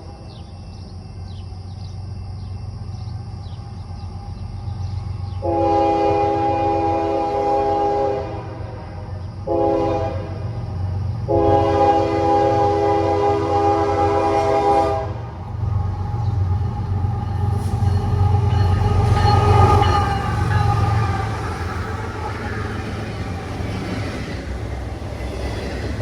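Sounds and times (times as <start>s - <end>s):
train rumbling: 0.0s - 26.0s
locomotive horn blasts: 5.4s - 10.5s, 11.3s - 15.2s.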